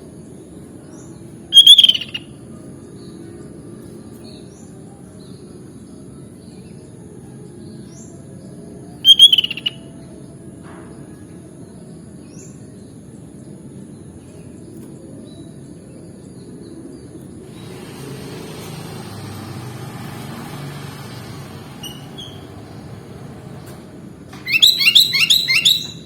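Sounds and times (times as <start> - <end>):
bird chirping burst: 1.6 - 2.2, 9.1 - 9.8, 24.4 - 26.0.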